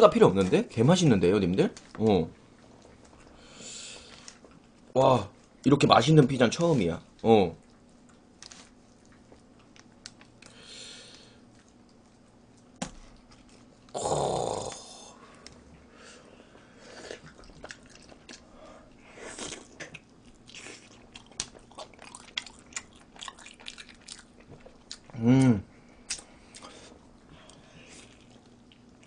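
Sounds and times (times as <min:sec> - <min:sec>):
vocal outburst: 0:13.9 - 0:15.2
person chewing and biting: 0:16.9 - 0:18.5, 0:19.2 - 0:29.0
wet mouth clicks and smacks: 0:26.1 - 0:26.7.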